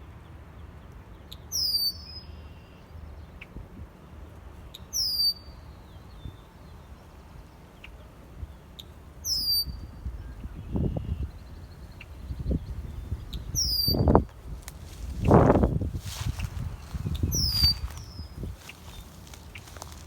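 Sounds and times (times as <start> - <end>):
blackbird whistled song: 1.3 - 2.7, 4.9 - 6.4, 9.2 - 14.3, 16.1 - 20.0
low rumble: 12.3 - 20.0.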